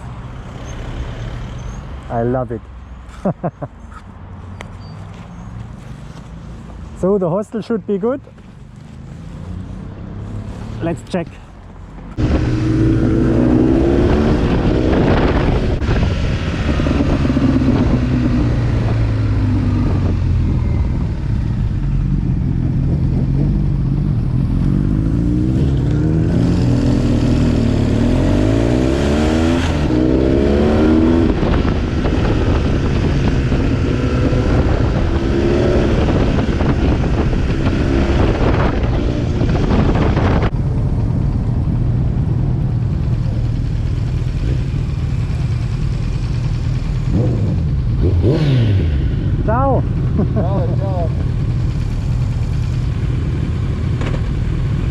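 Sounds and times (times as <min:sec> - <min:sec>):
motorcycle engine accelerating: 0:12.1 - 0:54.9.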